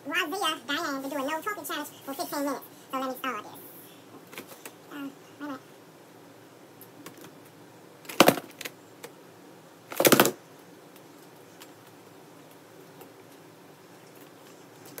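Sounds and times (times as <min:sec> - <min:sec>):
person humming: 0:04.9 - 0:05.6.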